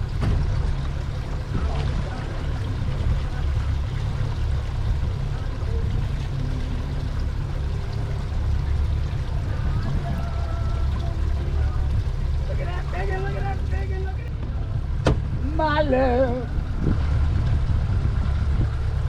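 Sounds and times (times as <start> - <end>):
boat engine rumble: 0.0 - 19.0
wind on microphone: 14.3 - 19.0.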